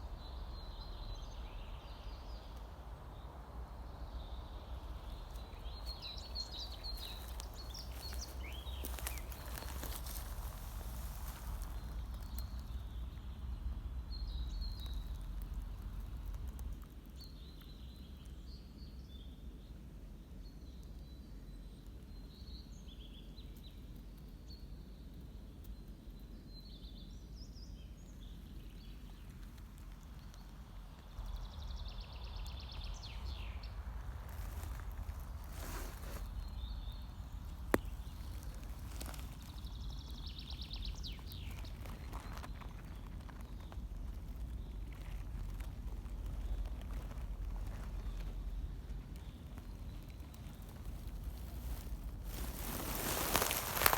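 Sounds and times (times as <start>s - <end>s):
small birds chirping: 0.0s - 53.9s
rustling: 5.1s - 13.0s, 33.2s - 53.9s
wind rumble on microphone: 27.7s - 53.9s.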